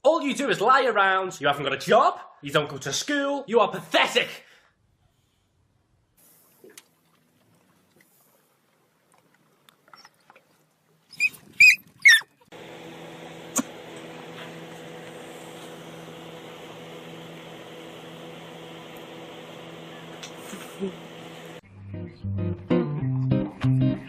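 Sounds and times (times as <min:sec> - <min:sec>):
high-pitched squeaks: 0:11.2 - 0:12.3
steady hum with low drone: 0:12.5 - 0:21.6.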